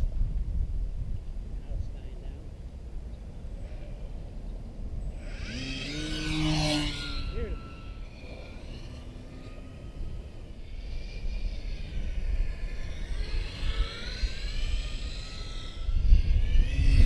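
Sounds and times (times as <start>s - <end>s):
model airplane motor and propeller whine: 0.0s - 17.0s
wind rumbling on microphone: 0.0s - 17.0s.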